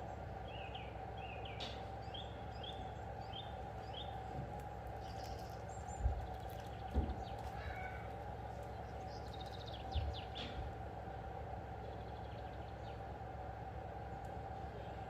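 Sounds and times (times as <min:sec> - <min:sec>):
steady background hum: 0:00.0 - 0:15.0
dull low thump: 0:06.9 - 0:07.3.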